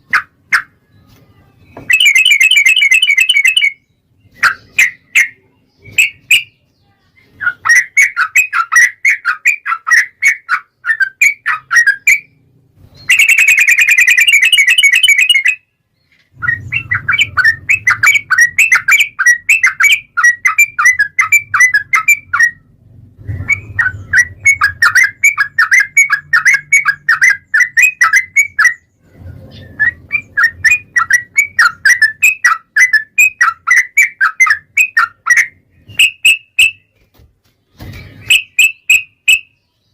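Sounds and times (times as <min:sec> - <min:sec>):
buzzy bird trill: 0:01.0 - 0:15.8, 0:16.4 - 0:22.7, 0:23.3 - 0:37.0, 0:37.7 - 0:39.9
bulbul singing chirped notes: 0:01.6 - 0:06.6, 0:10.9 - 0:15.8, 0:38.2 - 0:39.9.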